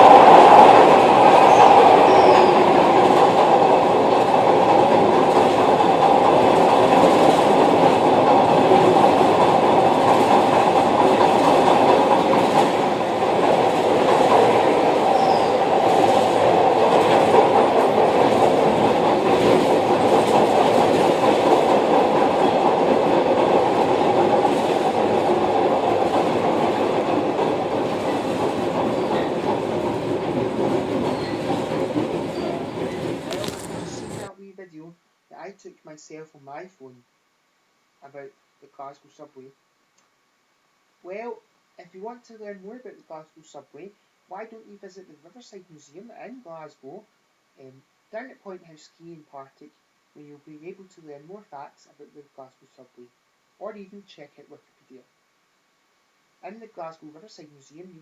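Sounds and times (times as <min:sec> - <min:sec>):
train wheels rumbling on rail: 0:00.0 - 0:34.3.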